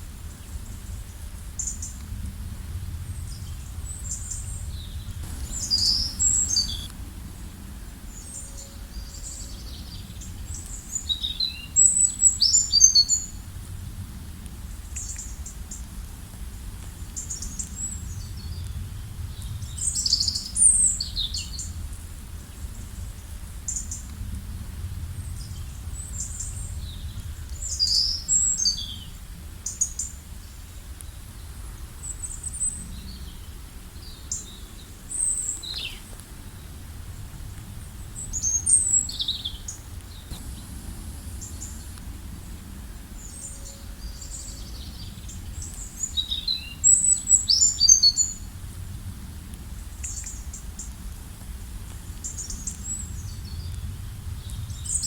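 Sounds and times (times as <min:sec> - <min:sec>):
low background rumble: 0:02.0 - 0:08.4, 0:36.0 - 0:46.2
songbirds chirping and trilling: 0:03.3 - 0:06.9.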